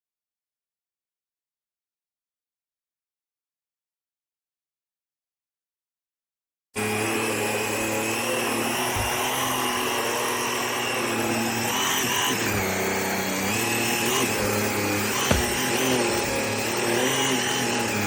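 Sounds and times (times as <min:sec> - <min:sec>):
vacuum cleaner motor whining: 0:06.8 - 0:18.0.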